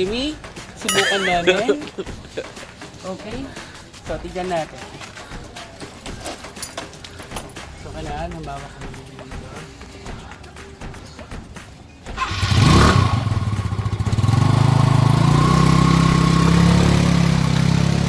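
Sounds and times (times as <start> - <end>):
motorcycle engine starting and idling: 12.0 - 18.0.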